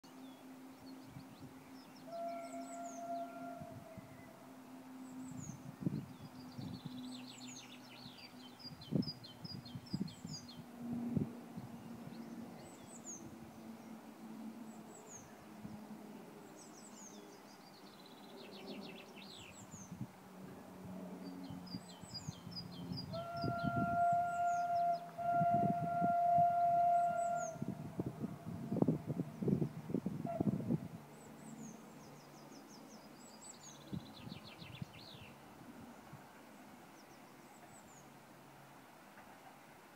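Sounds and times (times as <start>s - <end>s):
steam locomotive whistle: 2.0s - 4.2s, 23.1s - 28.9s.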